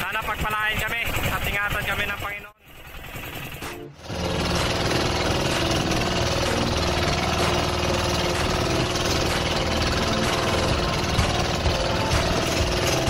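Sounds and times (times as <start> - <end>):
boat engine running: 0.0 - 13.0
water splashing along hull: 4.1 - 13.0.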